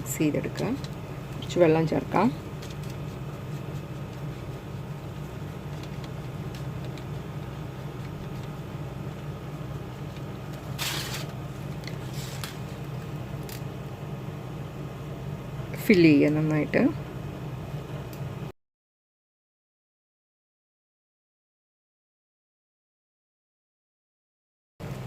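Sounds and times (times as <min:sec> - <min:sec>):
low background hum: 0:00.0 - 0:18.6
scratchy rustle: 0:10.8 - 0:11.4.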